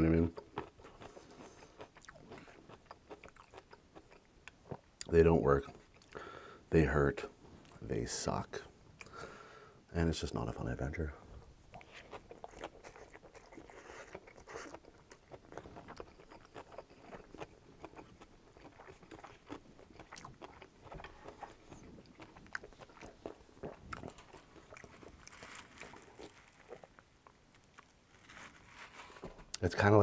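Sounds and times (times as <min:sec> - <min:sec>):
chewing noodles: 0:00.3 - 0:05.1, 0:11.7 - 0:29.6.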